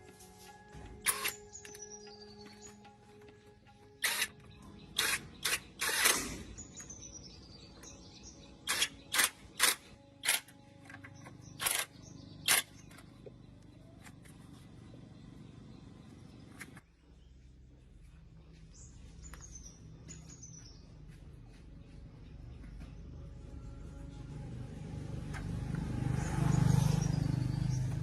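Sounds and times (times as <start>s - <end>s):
sharp mechanical noise bursts: 4.0s - 4.4s, 5.0s - 6.8s, 8.6s - 10.5s.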